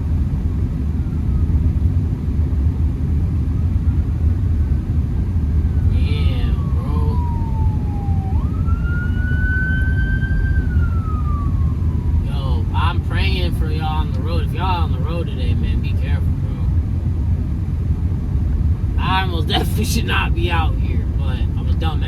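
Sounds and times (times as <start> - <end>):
engine and road rumble: 0.0 - 22.0
ambulance siren wailing: 5.2 - 16.6.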